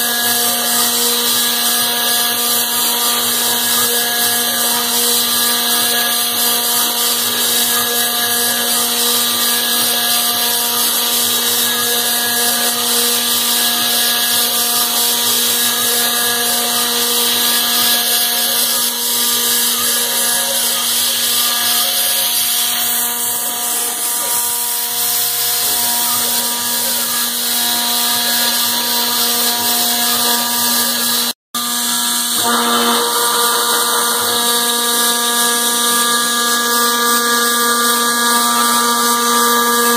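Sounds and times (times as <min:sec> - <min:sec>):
hiss of metal cutting: 0:00.0 - 0:31.3
router spindle whine: 0:00.0 - 0:39.9.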